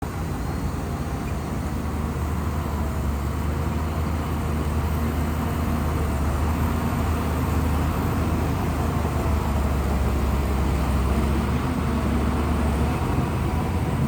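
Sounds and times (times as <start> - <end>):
diesel engine droning: 0.0 - 14.0.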